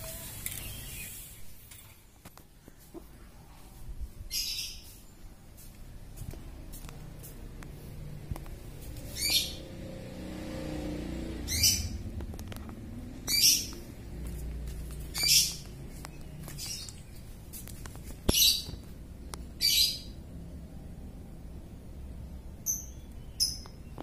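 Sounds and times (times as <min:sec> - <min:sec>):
bird chirping: 0:00.2 - 0:01.7, 0:04.3 - 0:05.3, 0:08.9 - 0:10.0, 0:11.3 - 0:12.2, 0:13.0 - 0:14.3, 0:14.9 - 0:20.2, 0:22.5 - 0:24.0.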